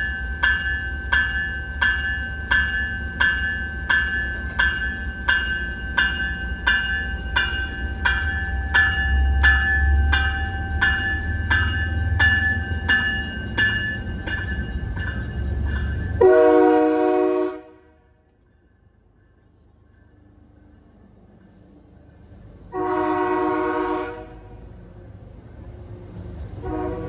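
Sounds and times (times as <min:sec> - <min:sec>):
train bell ringing: 0:00.0 - 0:17.6
low rumble of train: 0:00.0 - 0:27.0
train horn blast: 0:16.2 - 0:18.1, 0:22.7 - 0:24.6, 0:26.6 - 0:27.0.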